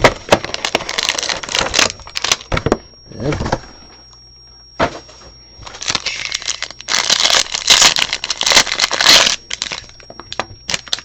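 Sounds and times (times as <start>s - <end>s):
plastic wrapping crinkling and tearing: 0.0s - 2.6s, 5.6s - 11.0s.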